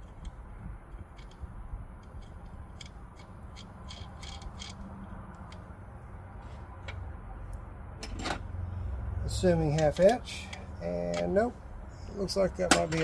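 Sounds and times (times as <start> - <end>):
metallic clicks of hand tools: 0.0 - 5.6.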